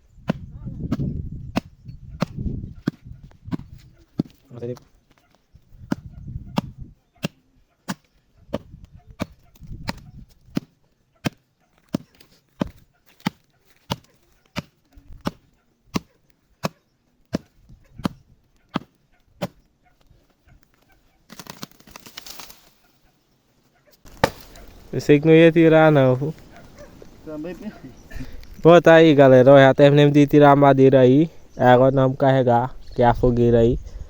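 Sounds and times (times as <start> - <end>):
wood chopping blows: 5.8 - 19.6, 24.0 - 24.9
cut wood rustling crash: 21.3 - 22.9, 24.0 - 25.0.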